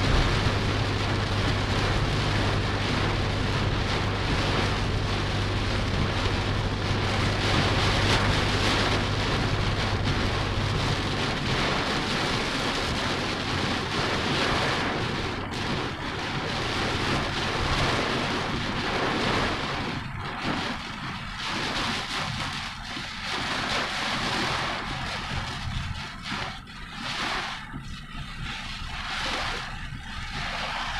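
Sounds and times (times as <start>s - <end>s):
heavy rain falling: 0.0s - 30.9s
low hum: 0.0s - 30.9s.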